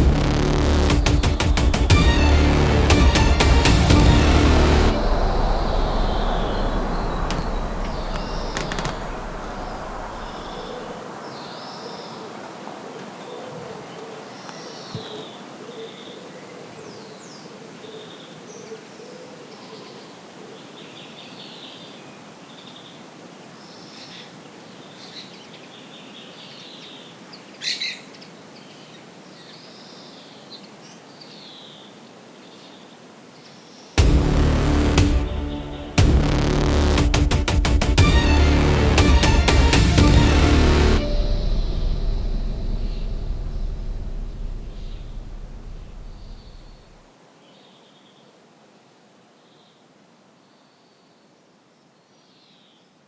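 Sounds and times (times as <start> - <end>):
background music: 0.0 - 10.9, 34.0 - 47.0
low repeated hooting: 0.0 - 11.0.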